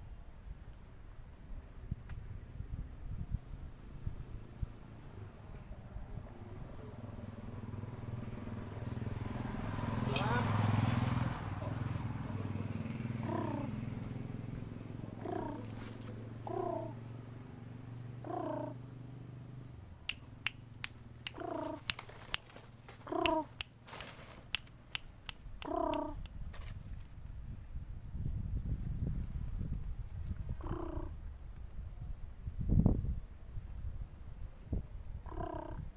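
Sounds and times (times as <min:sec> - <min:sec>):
dove cooing softly: 0:13.1 - 0:13.9, 0:15.0 - 0:17.0, 0:18.2 - 0:18.8, 0:21.3 - 0:21.9, 0:23.0 - 0:23.6, 0:25.6 - 0:26.2, 0:30.5 - 0:31.2, 0:35.2 - 0:35.9
sharp clicks: 0:20.1 - 0:26.4.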